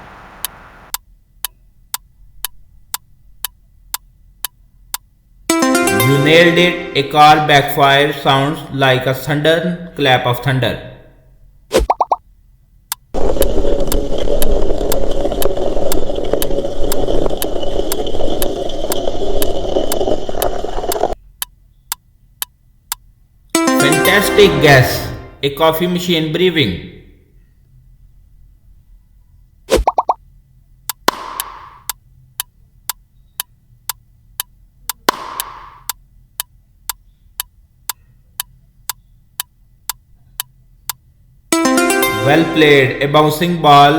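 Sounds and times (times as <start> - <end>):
clock-like ticking: 0.9 - 7.2, 30.9 - 41.0
sharp ticking: 12.9 - 24.1.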